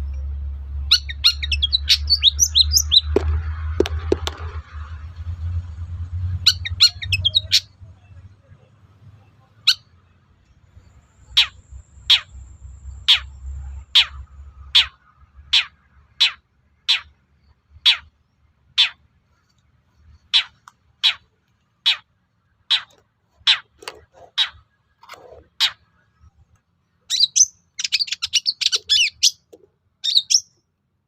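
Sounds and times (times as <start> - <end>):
low rumble: 0.0 - 9.1
harsh bird calls sweeping downward: 0.8 - 4.1, 6.3 - 8.1, 10.8 - 19.0, 27.1 - 30.6
bird chirps and trills: 0.8 - 4.2, 6.2 - 8.3, 9.3 - 9.9, 10.5 - 26.4, 27.1 - 30.6.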